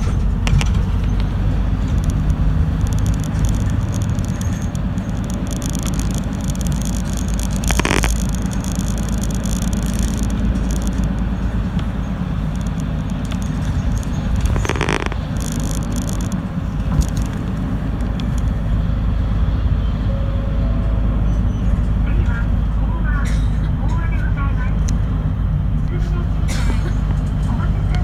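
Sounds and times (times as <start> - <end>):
bus engine and road rumble: 0.0 - 28.0.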